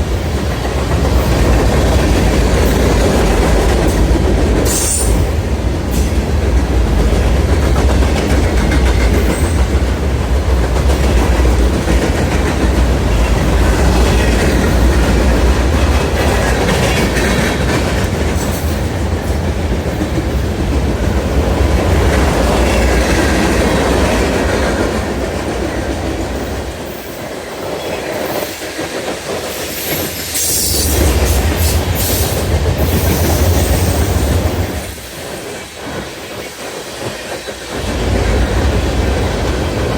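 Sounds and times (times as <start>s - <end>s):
freight train rumbling: 0.0s - 39.9s
train wheels clacking: 0.0s - 39.9s.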